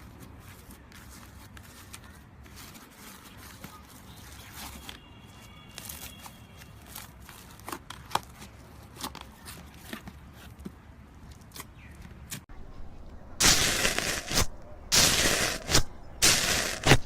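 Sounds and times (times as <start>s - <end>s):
slime squeezed by hand: 13.4s - 17.0s.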